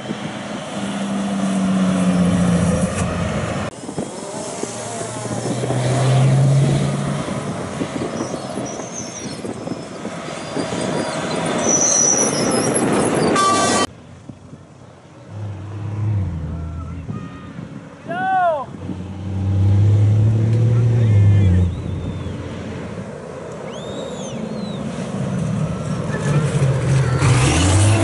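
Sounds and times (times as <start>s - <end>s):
tyre and wind noise: 0.0s - 14.8s
race truck engine: 0.0s - 18.0s, 18.7s - 28.0s
faint engine: 18.8s - 28.0s.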